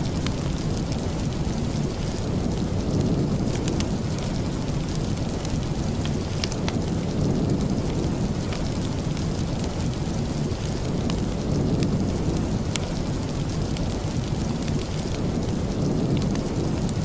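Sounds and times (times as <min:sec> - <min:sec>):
steady rain: 0:00.0 - 0:17.0
wood fire crackling: 0:00.0 - 0:17.0.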